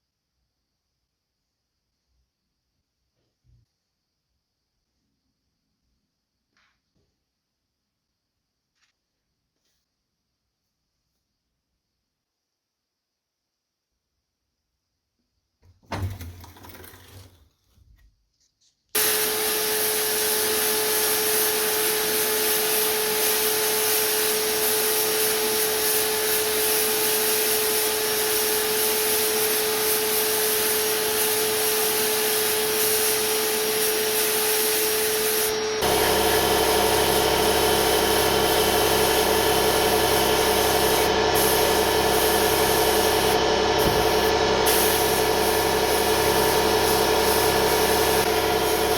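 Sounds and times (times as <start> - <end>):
power tool grinding metal: 19.0 - 26.7, 27.4 - 48.9.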